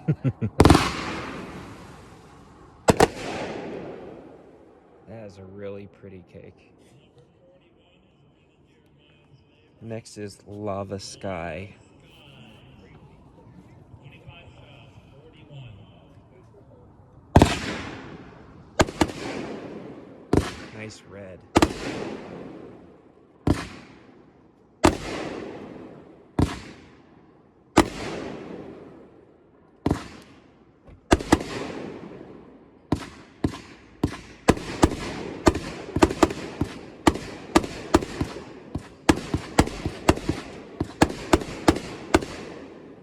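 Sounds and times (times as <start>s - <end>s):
firework shots with hiss: 0.6s - 4.5s, 17.4s - 21.0s, 21.6s - 22.8s, 23.4s - 24.1s, 24.8s - 27.1s, 27.8s - 28.8s, 29.8s - 30.5s, 31.1s - 32.2s, 32.9s - 42.9s.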